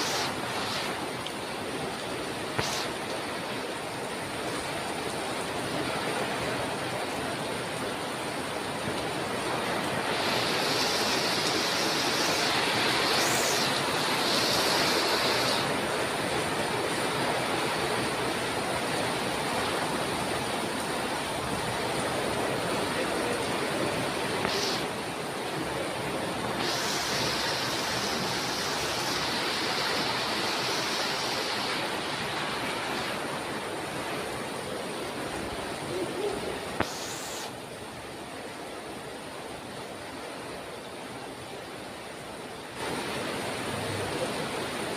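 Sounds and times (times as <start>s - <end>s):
sharper higher hiss: 0.0s - 0.9s, 2.6s - 3.0s, 10.1s - 15.7s, 24.4s - 24.9s, 26.6s - 31.7s, 36.8s - 37.6s
heavy rain hissing: 0.0s - 38.6s, 42.7s - 44.9s.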